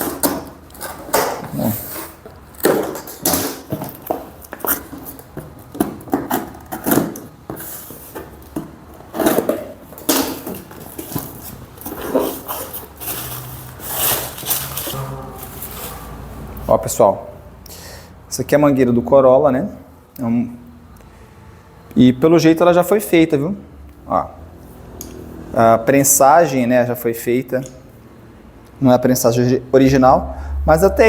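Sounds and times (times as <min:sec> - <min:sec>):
packaging rustling and tearing: 0:09.1 - 0:16.2.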